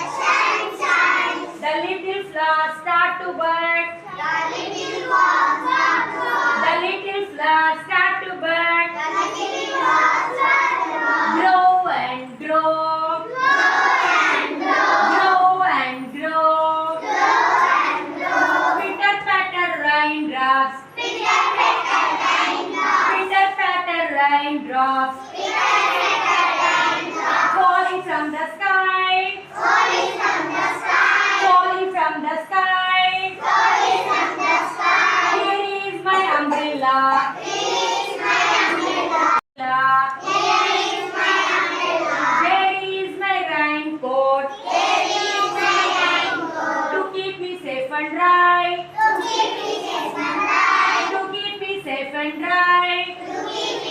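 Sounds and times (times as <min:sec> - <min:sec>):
children singing in unison: 0:00.0 - 0:01.6, 0:04.2 - 0:06.6, 0:09.0 - 0:11.4, 0:13.2 - 0:15.5, 0:16.8 - 0:19.0, 0:21.0 - 0:23.2, 0:25.2 - 0:27.7, 0:29.4 - 0:31.6, 0:33.3 - 0:35.6, 0:37.2 - 0:39.4, 0:40.2 - 0:42.6, 0:44.5 - 0:47.1, 0:48.9 - 0:51.3, 0:53.1 - 0:53.9.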